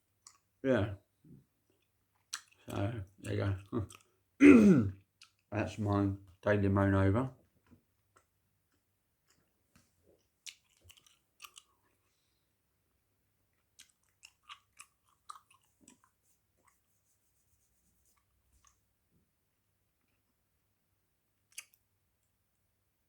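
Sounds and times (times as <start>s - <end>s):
gum chewing: 1.8s - 4.2s, 5.0s - 5.5s, 10.2s - 12.0s, 13.5s - 16.9s, 21.5s - 21.8s.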